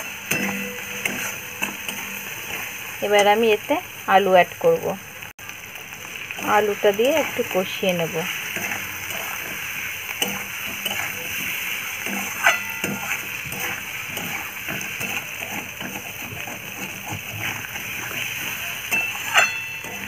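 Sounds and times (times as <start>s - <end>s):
spatula clinking on pan: 0.0s - 2.7s, 10.2s - 20.0s
metal spatula scraping pan: 0.0s - 2.9s, 8.2s - 20.0s
potatoes sizzling in a pan: 0.0s - 20.0s.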